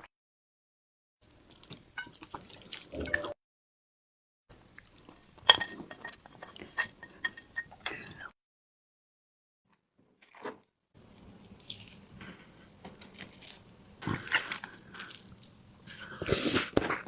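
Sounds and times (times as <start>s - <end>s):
wet chewing and mouth smacks: 1.5s - 3.3s, 11.4s - 17.0s.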